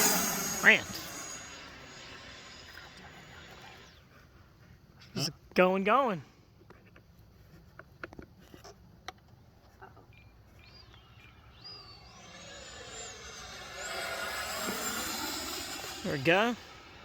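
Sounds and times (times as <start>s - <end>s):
air rushing: 0.0s - 2.2s
electric fan jet whining: 0.0s - 4.0s, 10.6s - 17.0s.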